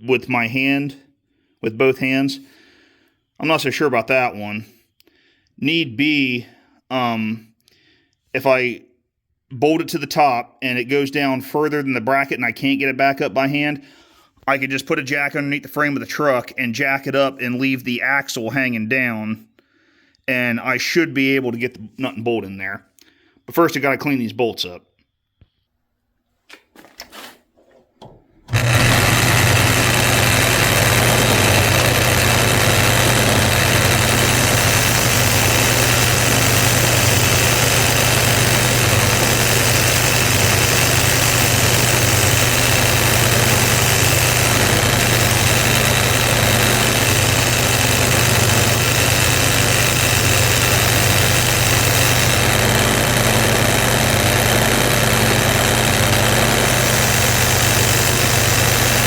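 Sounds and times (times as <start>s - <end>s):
wire wheel grinder brushing: 28.5s - 59.0s.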